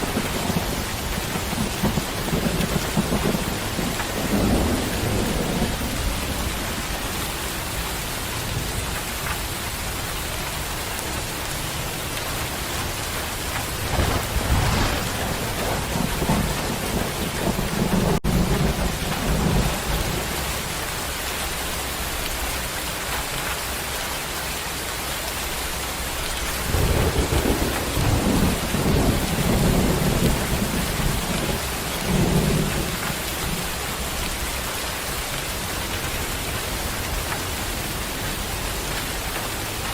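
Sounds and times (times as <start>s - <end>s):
thunder rolling: 0.0s - 7.2s, 13.6s - 20.5s, 26.5s - 33.1s
rain hissing: 9.9s - 23.9s, 25.3s - 39.9s.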